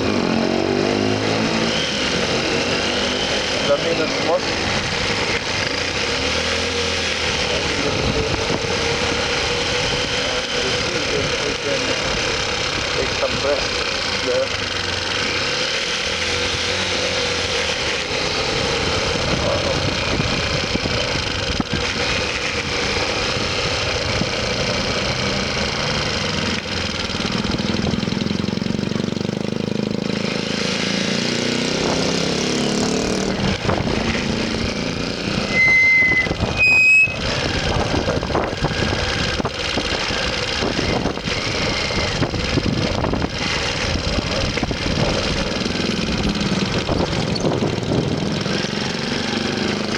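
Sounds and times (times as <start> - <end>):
motorcycle engine running: 0.0 - 49.9
vehicle horn beeps: 35.5 - 37.2.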